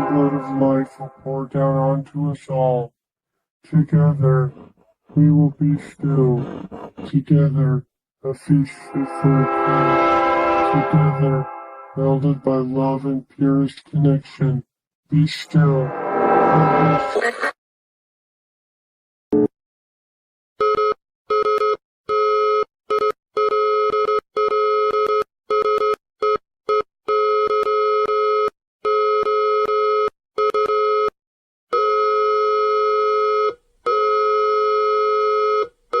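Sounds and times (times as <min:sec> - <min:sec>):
brief burst of sound: 0:15.5 - 0:17.5.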